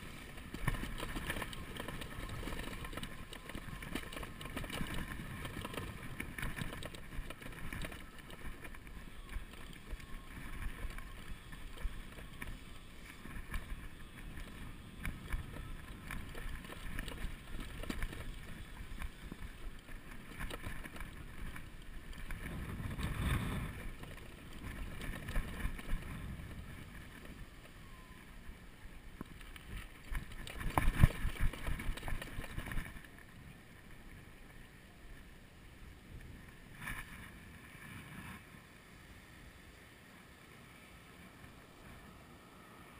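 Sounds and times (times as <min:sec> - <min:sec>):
wind buffeting microphone: 0:00.0 - 0:28.6.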